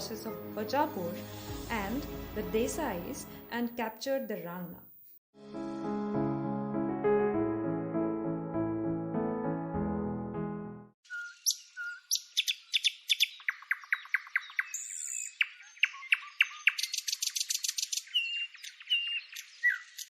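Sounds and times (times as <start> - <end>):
bird whistled notes: 11.0 - 20.0
birds chirping and trilling: 11.0 - 20.0.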